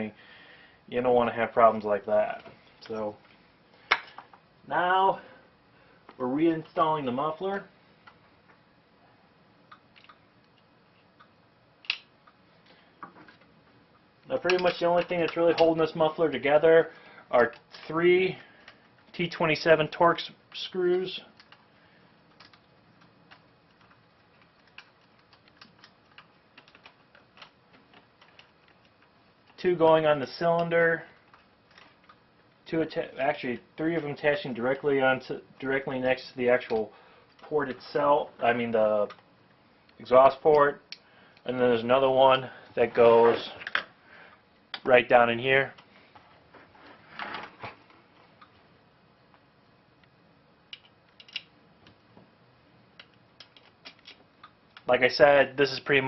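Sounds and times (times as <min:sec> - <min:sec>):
small metal parts clicking: 0:50.7 - 0:51.5, 0:53.0 - 0:54.5.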